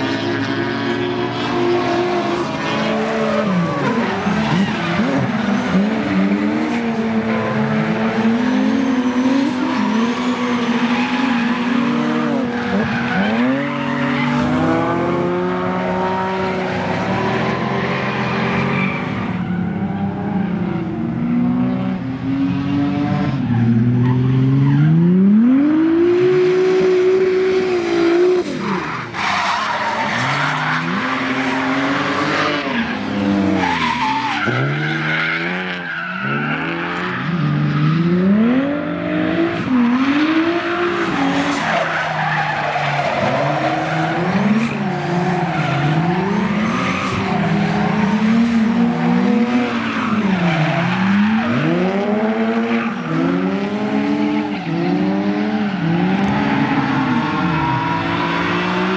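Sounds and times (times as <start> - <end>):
car engine revving: 0.0 - 58.9
tyre screech: 27.5 - 37.4.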